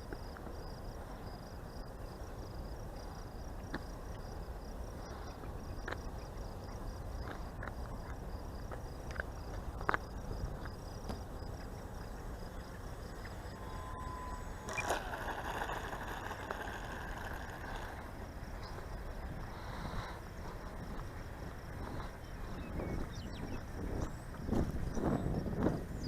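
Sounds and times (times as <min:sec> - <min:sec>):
insect chirping: 0:00.0 - 0:26.0
wind rumbling on microphone: 0:00.0 - 0:26.0
model plane electric motor whine: 0:12.7 - 0:19.0.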